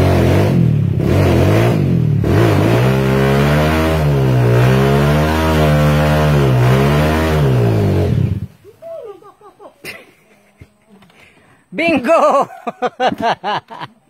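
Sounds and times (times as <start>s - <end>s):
motorcycle engine revving hard: 0.0s - 8.6s.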